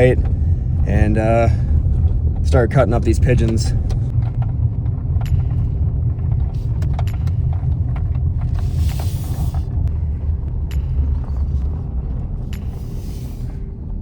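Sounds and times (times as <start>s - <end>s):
truck engine and road rumble: 0.0s - 14.0s
clicks and rattles: 3.9s - 9.7s
brief air hiss: 8.6s - 9.6s.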